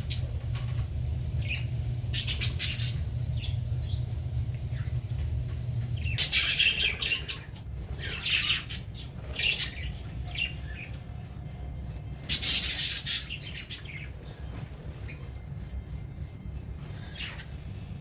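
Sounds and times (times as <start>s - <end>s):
budgerigars chirping: 0.0s - 11.0s
steady low hum: 0.0s - 18.0s.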